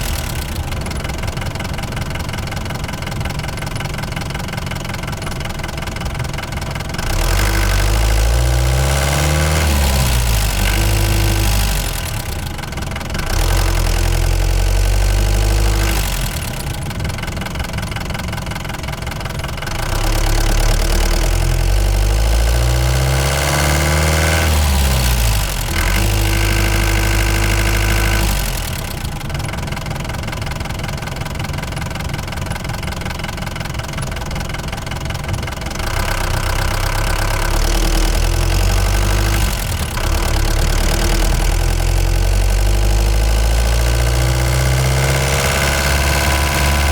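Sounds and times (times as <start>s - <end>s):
van engine running: 0.0s - 46.9s.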